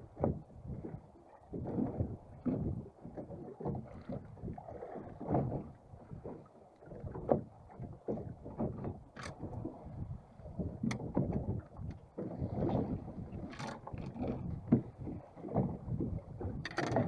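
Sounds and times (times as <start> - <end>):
water slapping against boat hull: 0.0 - 17.0
boat hull knocks: 10.6 - 17.0.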